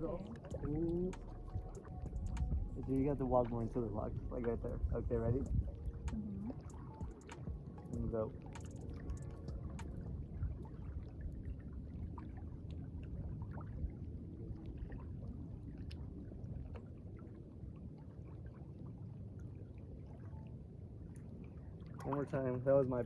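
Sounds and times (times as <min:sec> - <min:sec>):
low steady rumble: 0:00.0 - 0:17.6
water lapping: 0:00.0 - 0:23.0.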